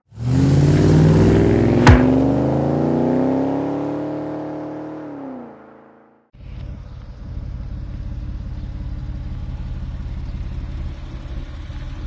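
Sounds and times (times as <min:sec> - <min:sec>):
car engine: 0:00.0 - 0:06.0, 0:07.0 - 0:12.0
sharp sweeping swish: 0:01.8 - 0:02.5.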